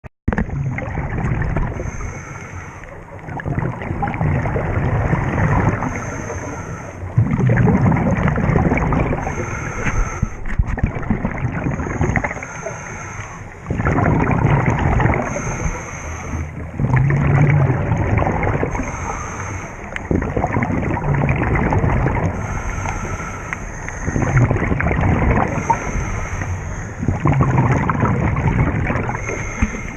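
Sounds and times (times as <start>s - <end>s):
gurgling exhaled bubbles: 0.3s - 29.9s
regulator hissing inhale: 1.7s - 2.9s, 5.8s - 7.1s, 9.2s - 10.4s, 11.7s - 13.7s, 15.2s - 16.6s, 18.7s - 20.0s, 22.3s - 24.5s, 25.5s - 27.2s, 29.0s - 29.9s.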